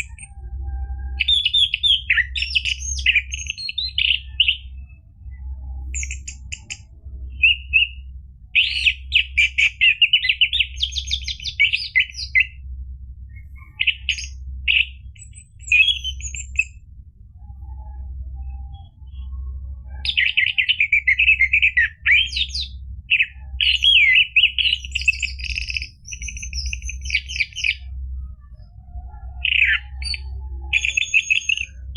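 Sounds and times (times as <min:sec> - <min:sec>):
low steady hum: 0:00.0 - 0:31.9
thrush singing chattering notes: 0:20.1 - 0:27.9.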